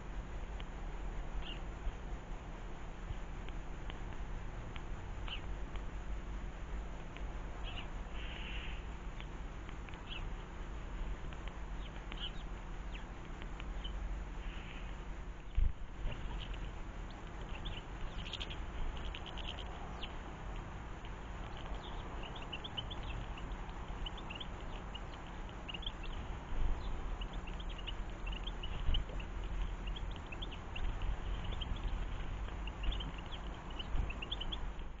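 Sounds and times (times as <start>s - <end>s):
garden birds chirping: 1.2s - 2.3s, 4.8s - 35.0s
low rumble: 11.8s - 35.0s.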